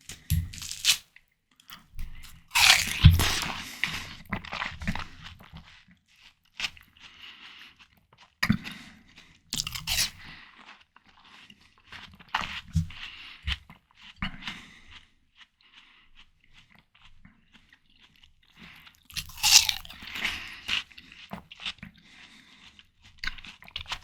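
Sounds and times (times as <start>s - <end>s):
biting into watermelon: 0.1s - 1.0s, 2.2s - 4.7s, 9.6s - 10.2s, 17.5s - 21.8s
wet chewing: 0.1s - 1.0s, 1.7s - 5.8s, 6.5s - 24.0s.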